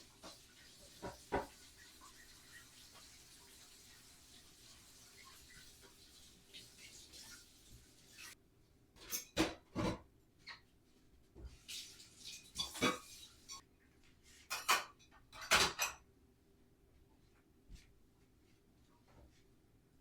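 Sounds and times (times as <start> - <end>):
dishes and cutlery clattering: 9.0 - 10.1, 12.2 - 13.6, 14.4 - 16.0.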